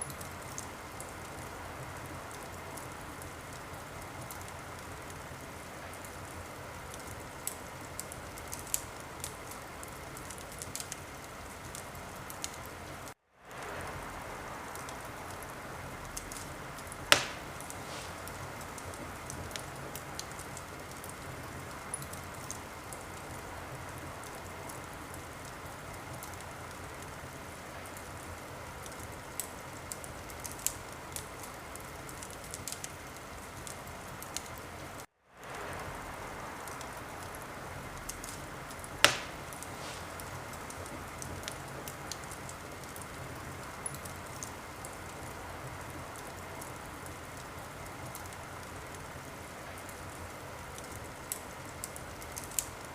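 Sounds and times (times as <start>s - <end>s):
wood fire crackling: 0.0s - 52.9s
sharp loud fire pop: 17.1s - 18.3s, 39.0s - 40.3s.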